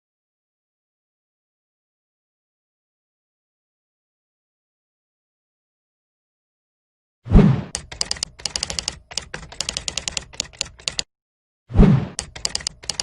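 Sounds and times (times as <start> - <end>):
rapid sharp mechanical clicks: 7.7 - 11.1, 12.2 - 13.0.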